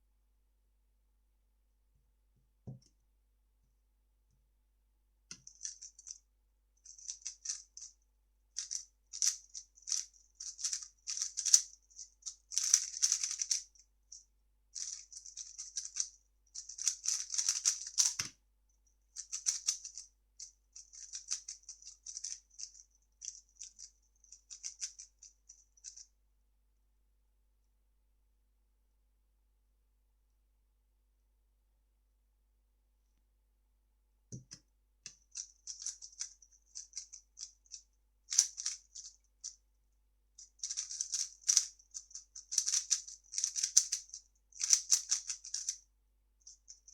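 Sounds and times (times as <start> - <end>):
puzzle cube clicking: 16.6 - 18.3, 40.6 - 41.7, 42.5 - 45.8.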